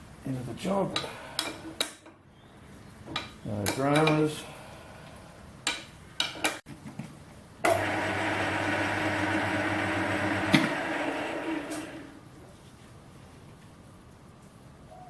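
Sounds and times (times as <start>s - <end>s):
metal lathe humming: 7.7s - 12.2s.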